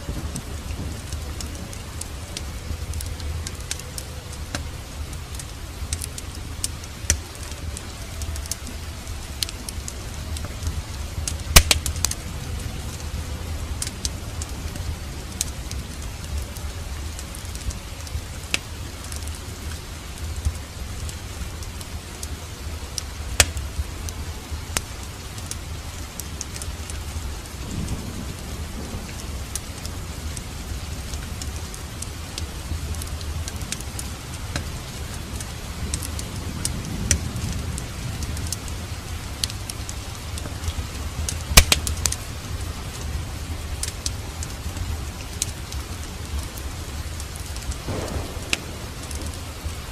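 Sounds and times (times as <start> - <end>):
steady rain: 0.0 - 49.9
wood fire crackling: 0.0 - 49.9
low rumble: 47.7 - 49.9.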